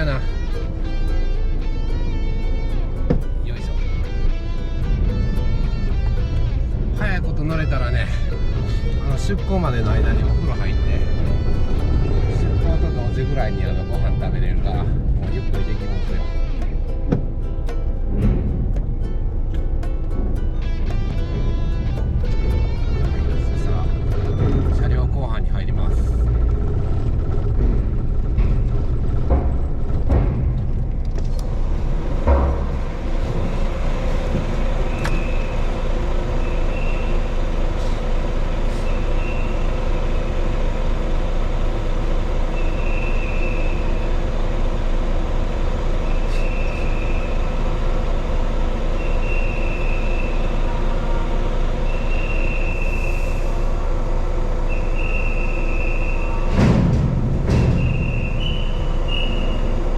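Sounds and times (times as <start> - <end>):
low rumble: 0.0 - 59.9
truck diesel engine running: 0.0 - 59.9
low thump: 17.1 - 17.4, 18.1 - 19.6, 27.4 - 35.3, 56.4 - 59.9.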